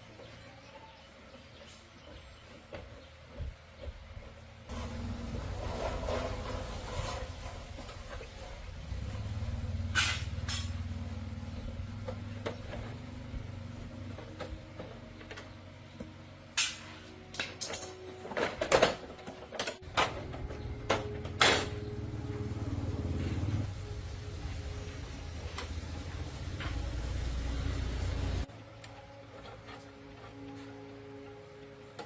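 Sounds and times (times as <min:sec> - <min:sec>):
sharp clanks and knocks: 0:01.6 - 0:13.2, 0:14.0 - 0:22.1
low motor hum: 0:03.4 - 0:16.3, 0:19.9 - 0:29.2.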